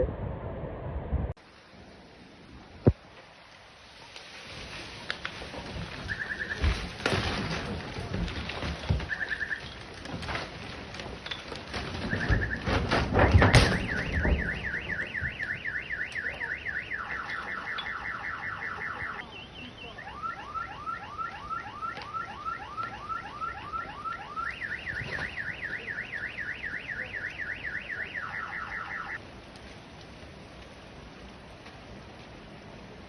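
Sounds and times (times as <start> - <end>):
car alarm siren: 6.1 - 6.8, 9.0 - 9.8, 12.0 - 29.2.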